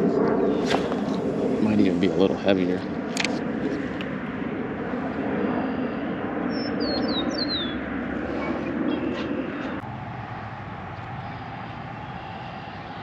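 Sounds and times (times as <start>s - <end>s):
outdoor background rumble: 0.0s - 13.0s
small bird chirping: 6.5s - 7.8s.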